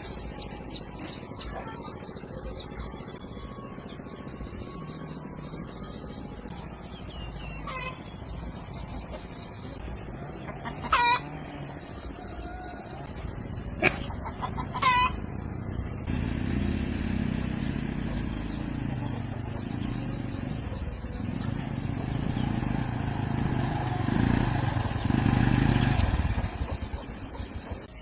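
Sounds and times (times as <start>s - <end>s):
chickens squawking: 7.5s - 8.1s, 10.4s - 11.5s, 13.7s - 15.4s.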